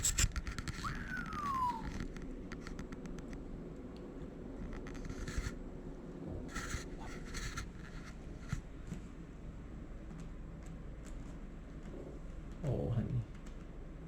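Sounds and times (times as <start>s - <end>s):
short falling whistle: 0.8s - 2.0s.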